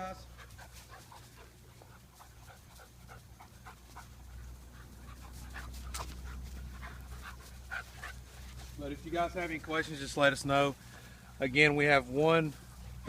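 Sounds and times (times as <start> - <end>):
puppy panting: 0.3 - 8.8.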